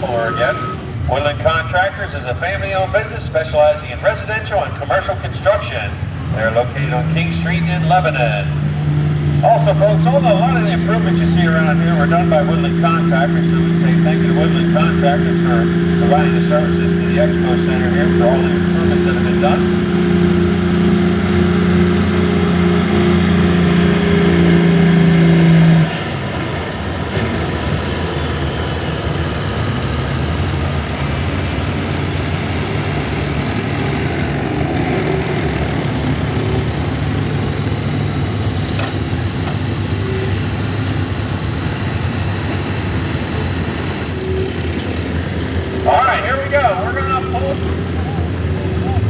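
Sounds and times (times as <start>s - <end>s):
high engine whistle: 0.0s - 1.3s, 39.8s - 40.9s, 44.0s - 48.2s
truck engine running under load: 0.0s - 49.0s.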